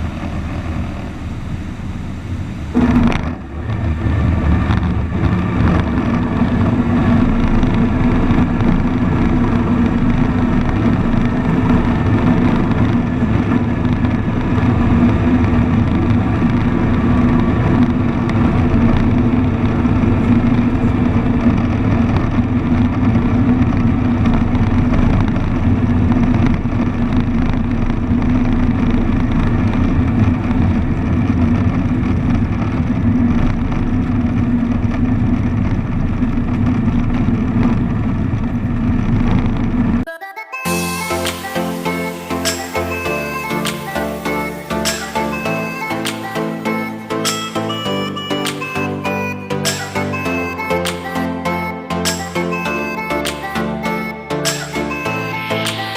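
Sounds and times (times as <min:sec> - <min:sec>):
aircraft engine and propeller drone: 0:00.0 - 0:22.7.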